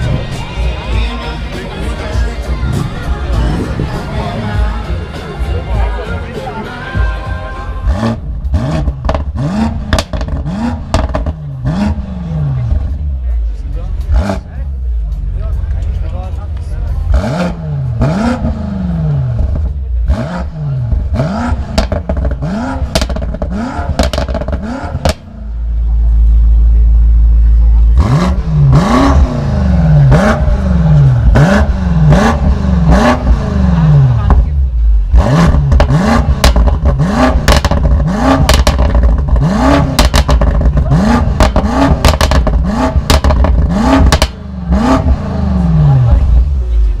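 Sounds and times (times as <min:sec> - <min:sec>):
car engine revving: 0:00.0 - 0:47.0
loud low rumble: 0:00.0 - 0:47.0
exhaust pops and crackles: 0:08.4 - 0:11.4, 0:20.9 - 0:25.3, 0:35.4 - 0:45.2.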